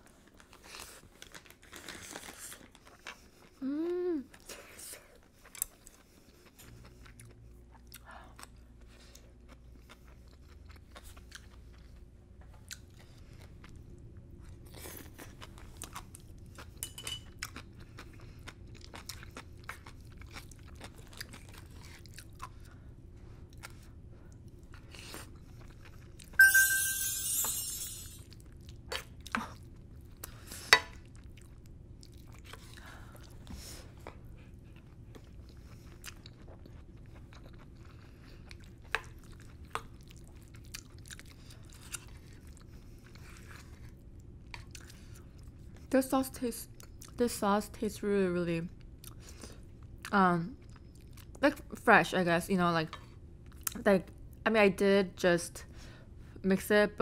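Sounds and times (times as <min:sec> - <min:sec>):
chewing and crunching: 0:00.0 - 0:03.7, 0:04.3 - 0:26.4, 0:28.2 - 0:45.9, 0:46.6 - 0:47.2, 0:48.8 - 0:51.7, 0:52.9 - 0:54.4
clatter with short ring: 0:26.4 - 0:28.2.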